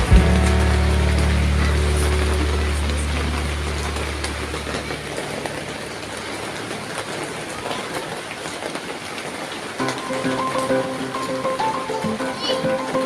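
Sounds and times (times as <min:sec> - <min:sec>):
low background music: 0:00.0 - 0:05.2, 0:09.8 - 0:13.0
steady rain falling: 0:00.0 - 0:13.0.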